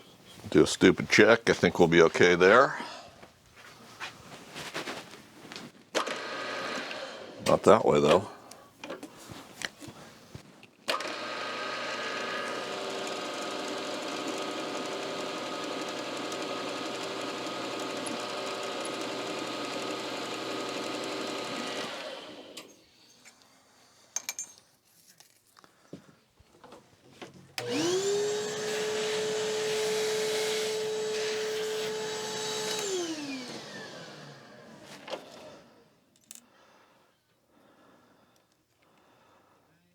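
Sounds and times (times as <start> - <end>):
milling machine motor whine: 11.0 - 22.6, 27.6 - 35.7.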